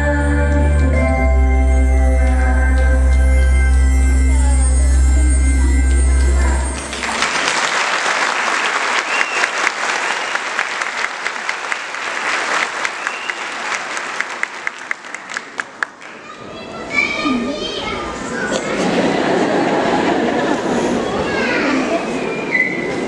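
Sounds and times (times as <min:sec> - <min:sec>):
low music chord: 0:00.0 - 0:07.0
audience applauding: 0:06.7 - 0:16.2.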